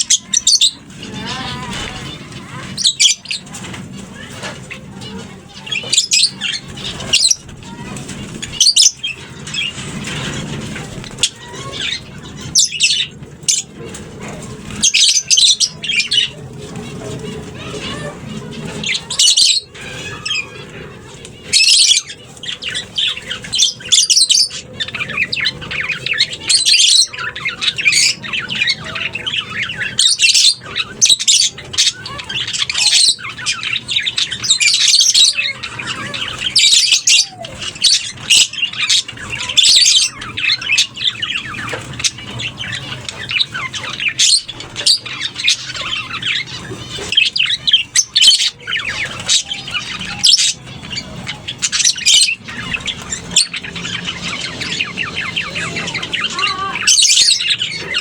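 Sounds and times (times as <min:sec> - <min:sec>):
birds squawking and chattering: 0:00.0 - 0:58.0.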